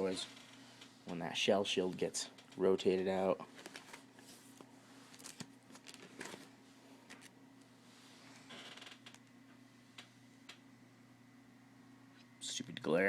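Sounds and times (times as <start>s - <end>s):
low steady hum: 0.0s - 13.0s
plastic pages rustling: 3.5s - 6.5s.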